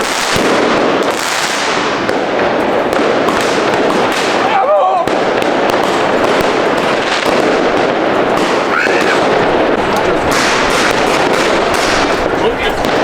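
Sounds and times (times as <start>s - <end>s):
fireworks and firecrackers banging: 0.0s - 13.0s.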